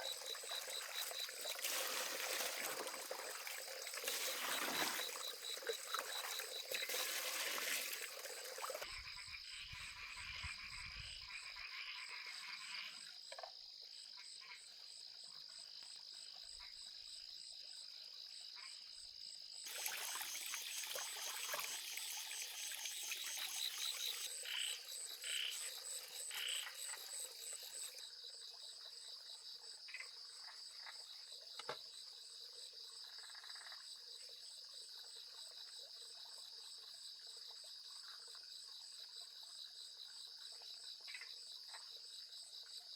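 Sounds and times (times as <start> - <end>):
trilling insects chorus: 0.0 - 13.0, 20.2 - 28.0
frogs calling: 8.2 - 13.0, 22.8 - 28.0.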